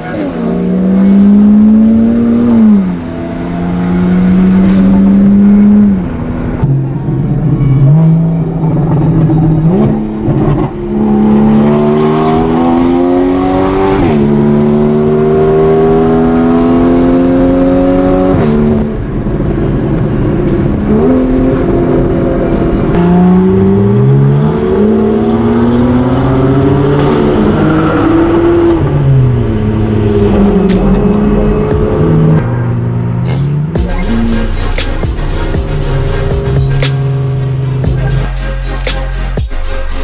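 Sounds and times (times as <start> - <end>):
sports car accelerating through gears: 0.0 - 38.0.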